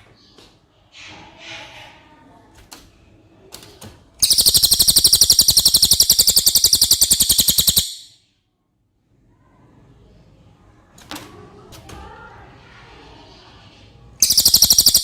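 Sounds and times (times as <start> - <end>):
bird trilling: 4.2 - 8.2, 14.2 - 15.0.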